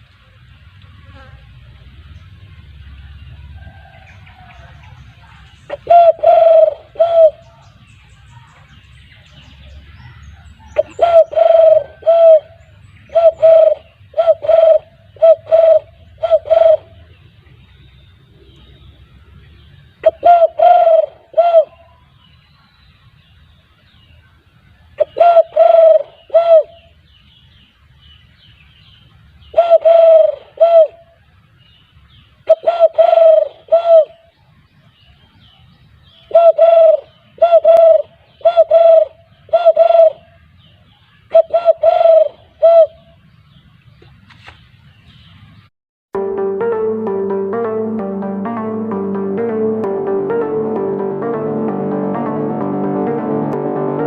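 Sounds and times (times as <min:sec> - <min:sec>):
dove cooing: 0:05.7 - 0:07.4, 0:10.7 - 0:17.0, 0:20.0 - 0:21.9, 0:25.0 - 0:26.8, 0:29.5 - 0:31.0, 0:32.5 - 0:34.2, 0:36.3 - 0:40.3, 0:41.3 - 0:43.0.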